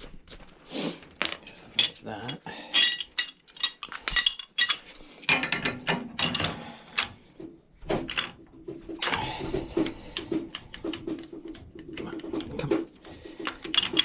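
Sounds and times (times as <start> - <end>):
wrench clinking on pipe fittings: 1.4 - 7.1.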